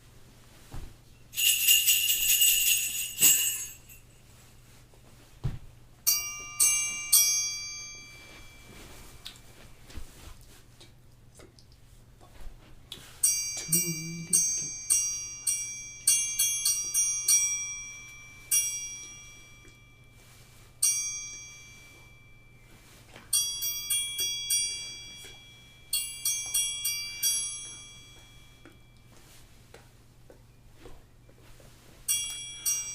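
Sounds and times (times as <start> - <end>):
tuned metal percussion melody: 6.0 - 9.5, 13.2 - 29.2, 32.1 - 32.9.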